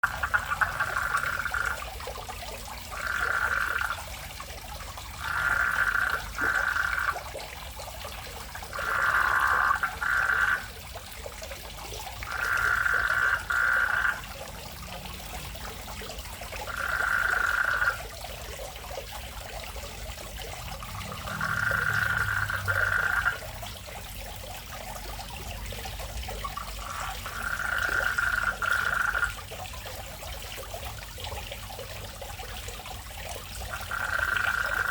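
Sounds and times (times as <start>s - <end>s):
frogs calling: 0.0s - 1.9s, 2.9s - 4.2s, 5.2s - 7.2s, 8.7s - 10.8s, 12.2s - 14.3s, 16.6s - 18.0s, 20.9s - 23.5s, 26.6s - 29.3s, 33.7s - 34.9s.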